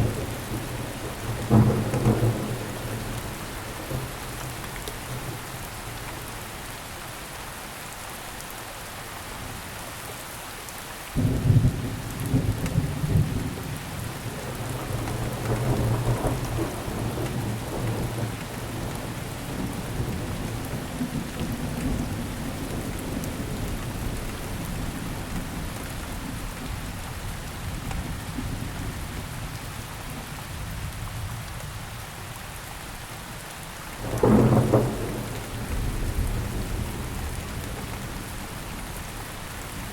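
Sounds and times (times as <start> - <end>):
thunder clap rumbling: 0.0 - 4.1, 34.0 - 38.5
steady rainfall: 0.0 - 39.9.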